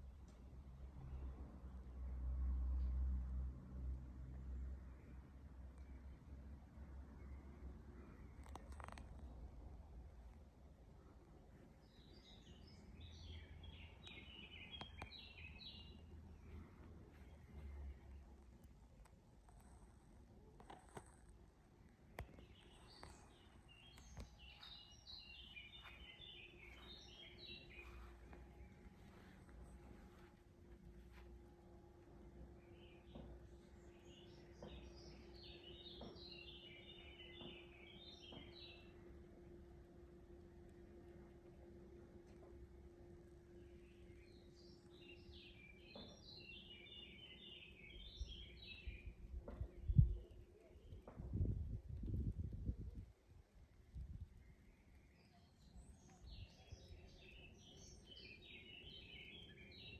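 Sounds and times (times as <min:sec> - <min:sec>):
songbird singing faintly: 0:04.9 - 0:39.5, 0:42.9 - 0:59.9
songbird twittering: 0:22.2 - 0:28.2, 0:54.4 - 0:59.9.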